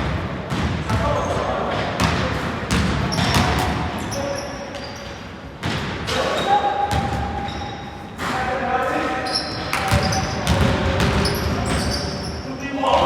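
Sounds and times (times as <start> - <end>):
basketball bouncing on gym floor: 0.0 - 3.9, 6.9 - 7.6, 9.7 - 12.1
players' voices: 0.6 - 13.0.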